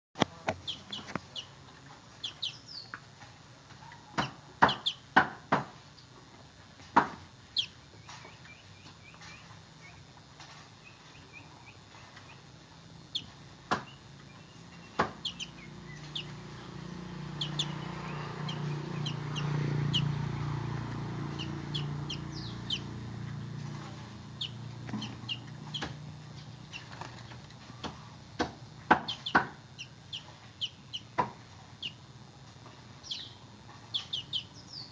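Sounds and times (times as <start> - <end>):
bird chirping and twittering: 0.6 - 1.6, 2.2 - 3.0, 3.8 - 5.1, 7.5 - 10.1, 10.8 - 12.5, 13.1 - 27.4, 29.0 - 32.0, 33.0 - 34.9
low hum: 7.3 - 34.9.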